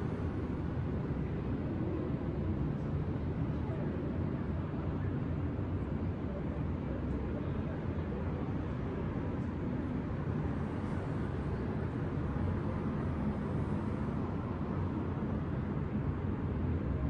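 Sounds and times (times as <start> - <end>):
distant city traffic rumble: 0.0 - 17.0.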